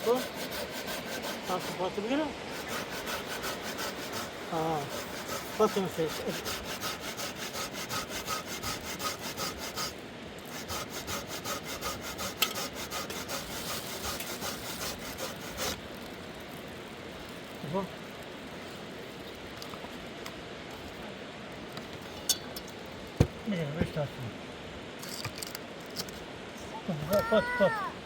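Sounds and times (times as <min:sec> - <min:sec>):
hand saw cutting wood: 0:00.0 - 0:16.2
wavering voice: 0:26.6 - 0:28.0.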